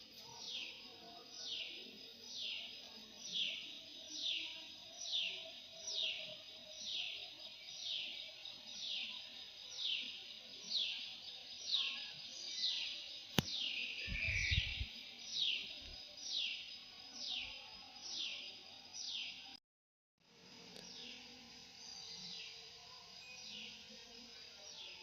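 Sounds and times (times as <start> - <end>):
sharp click: 13.3 - 13.6
bird calling: 14.0 - 14.9.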